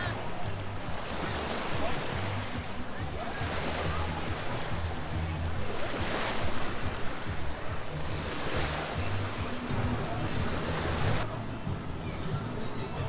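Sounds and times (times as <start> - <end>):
rushing water: 0.0 - 13.0
wind buffeting microphone: 0.0 - 13.0.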